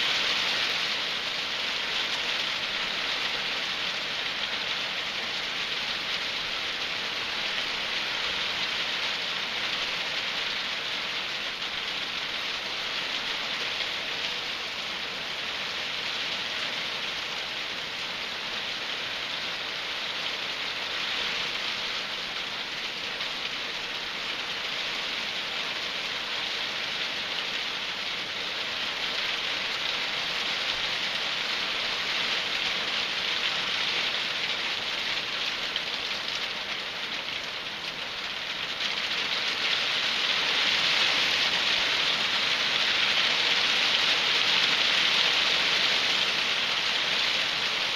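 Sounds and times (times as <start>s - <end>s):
hail and rain pelting down: 0.0s - 47.9s.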